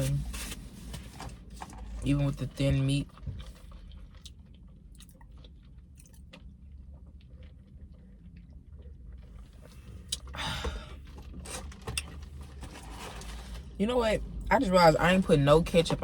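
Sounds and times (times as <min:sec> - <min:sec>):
person chewing: 0:03.1 - 0:10.4.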